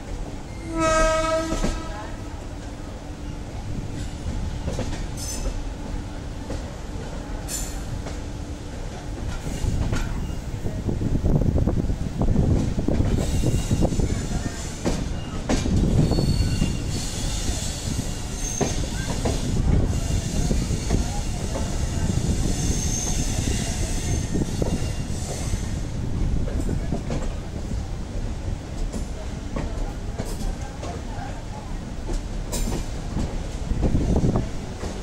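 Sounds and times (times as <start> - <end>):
train wheels rumbling on rail: 0.0 - 35.0
high-pitched wheel squeals: 16.0 - 20.4, 22.3 - 25.8.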